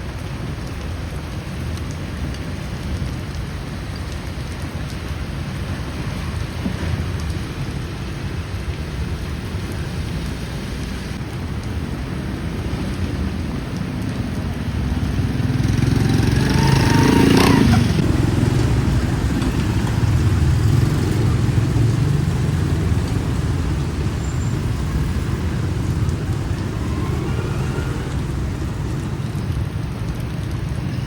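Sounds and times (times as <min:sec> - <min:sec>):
rain: 0:00.0 - 0:31.0
traffic rumble: 0:00.0 - 0:31.0
motorbikes passing: 0:11.8 - 0:31.0.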